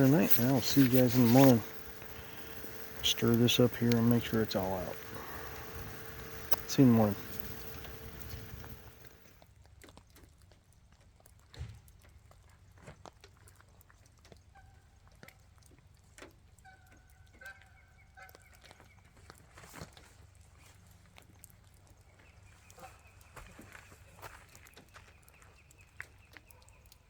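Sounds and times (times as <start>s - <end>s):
faint ticks and taps: 0.0s - 9.3s.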